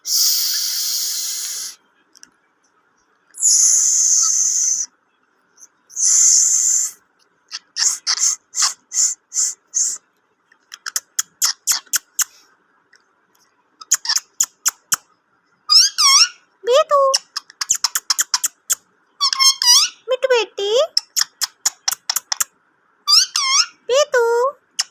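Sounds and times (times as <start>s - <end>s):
parrot hissing: 0.0s - 1.8s, 3.4s - 4.9s, 6.0s - 7.0s, 7.8s - 10.0s
parrot clicks and chirps: 10.6s - 12.4s, 13.8s - 15.1s, 17.2s - 19.9s, 21.0s - 22.5s.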